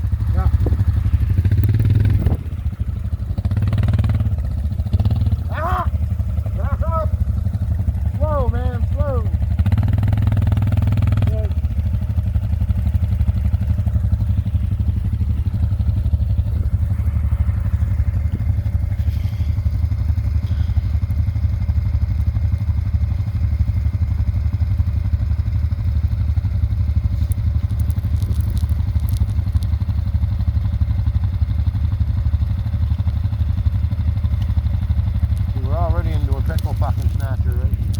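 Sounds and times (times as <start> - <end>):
atv engine running: 0.0 - 37.9
faint light ticks: 22.1 - 22.7, 27.2 - 29.7, 34.3 - 34.6, 35.2 - 35.6.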